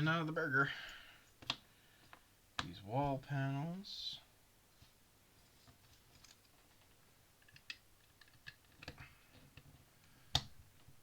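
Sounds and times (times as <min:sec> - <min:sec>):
plastic bricks clicking: 0:07.4 - 0:09.0.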